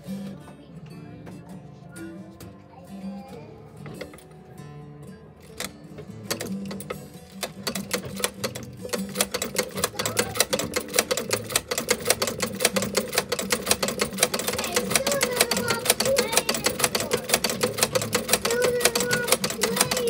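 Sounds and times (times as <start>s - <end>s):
faint background music: 0.0s - 20.0s
sewing machine stitching: 5.4s - 20.0s.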